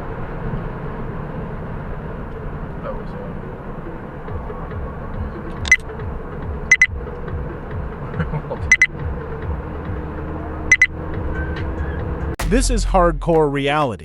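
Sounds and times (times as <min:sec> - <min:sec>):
vehicle rumble: 0:00.0 - 0:14.0
high electronic double beeps: 0:05.6 - 0:05.8, 0:06.7 - 0:06.9, 0:08.7 - 0:08.9, 0:10.7 - 0:10.9.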